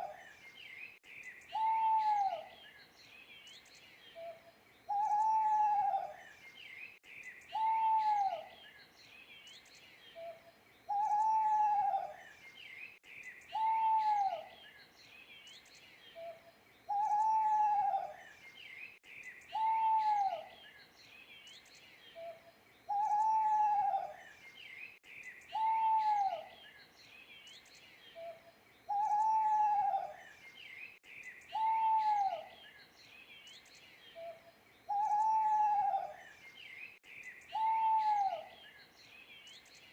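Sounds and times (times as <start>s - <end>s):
small birds chirping: 0.0s - 39.9s
owl hooting: 1.5s - 2.5s, 4.2s - 6.2s, 7.5s - 8.5s, 10.2s - 12.2s, 13.5s - 14.5s, 16.2s - 18.2s, 19.5s - 20.5s, 22.2s - 24.2s, 25.5s - 26.5s, 28.2s - 30.2s, 31.5s - 32.6s, 34.2s - 36.2s, 37.5s - 38.6s.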